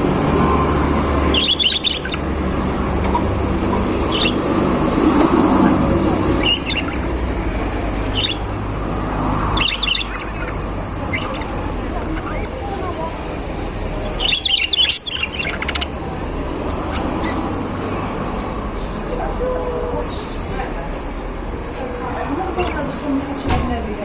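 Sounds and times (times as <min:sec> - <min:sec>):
budgerigars chirping: 0:00.0 - 0:19.3, 0:21.8 - 0:23.6.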